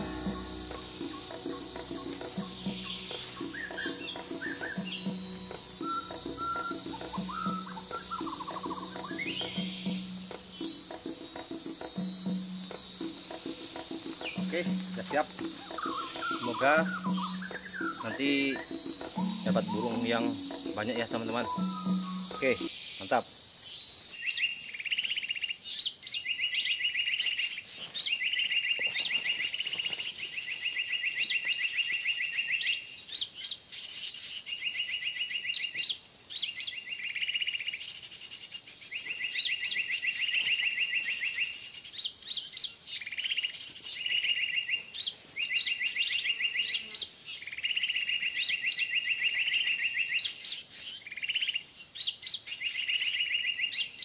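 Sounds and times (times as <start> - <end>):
high bird chirps: 0.0 - 22.8
rapid buzzy bird trill: 0.0 - 23.0.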